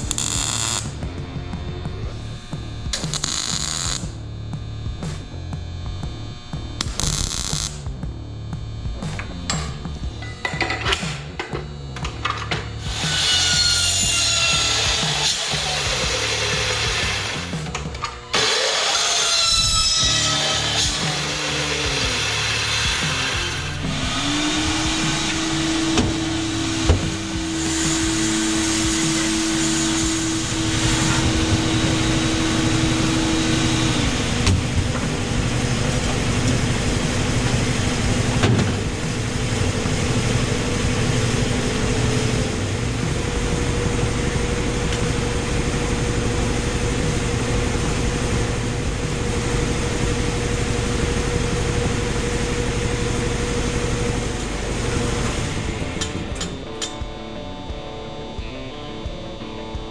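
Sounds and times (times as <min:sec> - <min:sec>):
power tool motor whining: 0:12.8 - 0:56.8.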